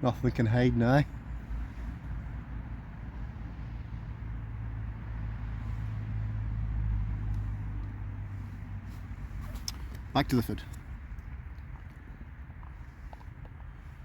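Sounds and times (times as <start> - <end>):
car passing on a road: 0.0 - 14.0.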